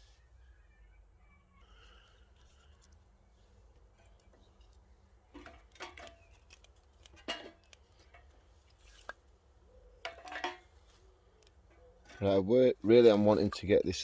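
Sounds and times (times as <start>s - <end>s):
wood sticks knocking and clicking: 3.8s - 9.2s, 10.0s - 12.4s.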